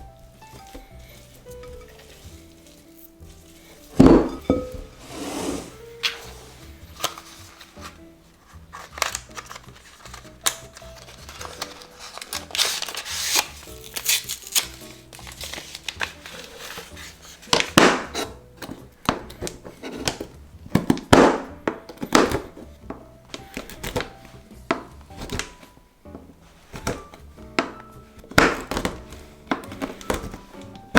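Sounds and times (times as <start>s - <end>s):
crinkling rustles: 0.0s - 30.9s
soft background music: 0.0s - 30.9s.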